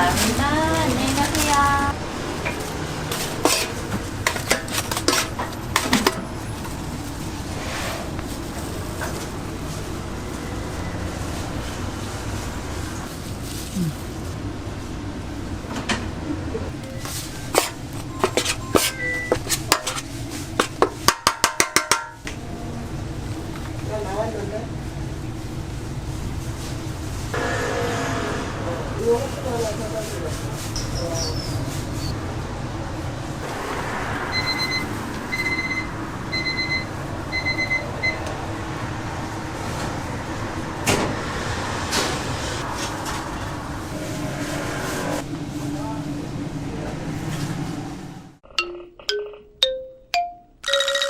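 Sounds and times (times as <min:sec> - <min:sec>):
metal utensils and trays clinking: 0:02.5 - 0:06.8, 0:17.1 - 0:22.2
electronic beeps: 0:18.1 - 0:19.4, 0:34.3 - 0:36.8.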